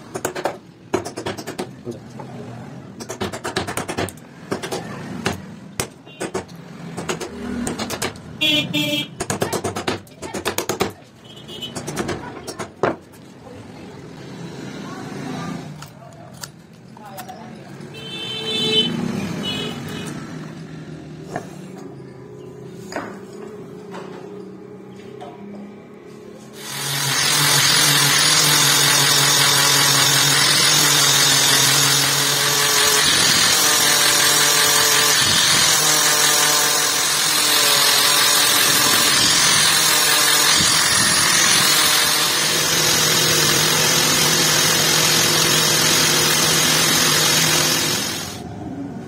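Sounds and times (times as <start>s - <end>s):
electric power tool running: 26.6s - 48.4s.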